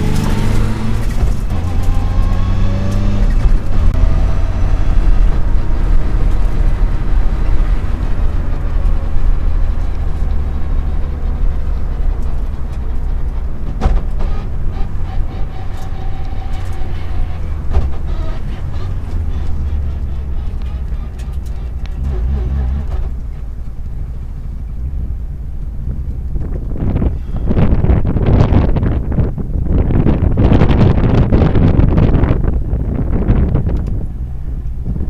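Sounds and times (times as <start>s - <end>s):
car engine revving: 0.0s - 28.9s
road and tyre rumble: 0.0s - 35.0s.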